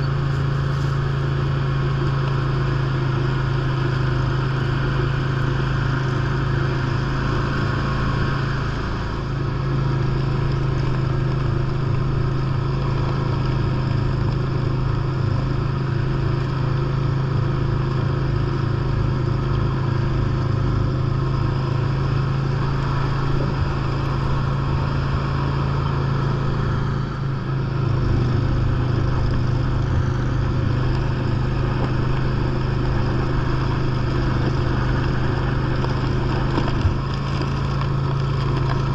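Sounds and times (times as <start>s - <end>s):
lawn tractor engine running: 0.0s - 38.9s
snow blower noise: 0.0s - 38.9s.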